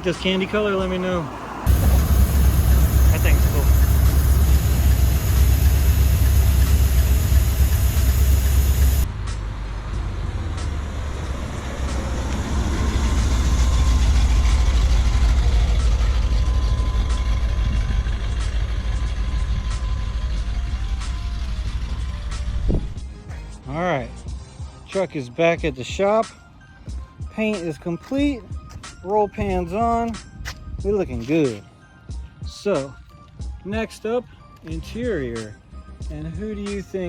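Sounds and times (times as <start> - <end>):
truck engine rumbling: 0.0 - 23.3.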